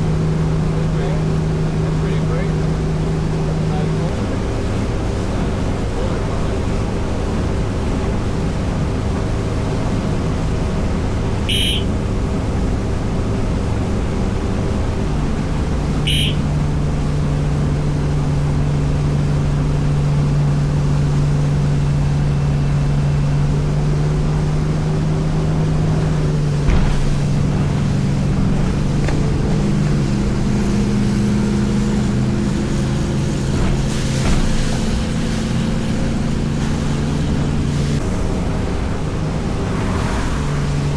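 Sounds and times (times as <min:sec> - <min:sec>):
motorboat engine hum: 0:00.0 - 0:40.9
wind: 0:00.0 - 0:40.9
short high chirps: 0:11.5 - 0:11.9, 0:16.1 - 0:16.5.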